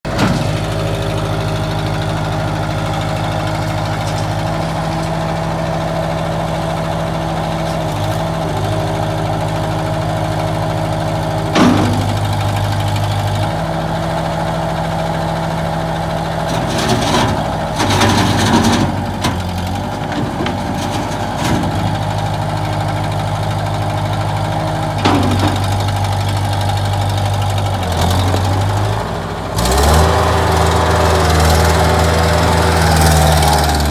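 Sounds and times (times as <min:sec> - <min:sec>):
diesel engine running: 0:00.0 - 0:33.9
clatter: 0:02.9 - 0:05.5, 0:11.5 - 0:13.5, 0:16.5 - 0:22.9, 0:25.0 - 0:28.7.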